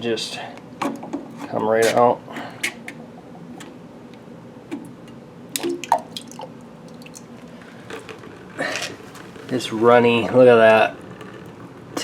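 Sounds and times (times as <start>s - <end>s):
oil dripping: 2.4s - 12.0s.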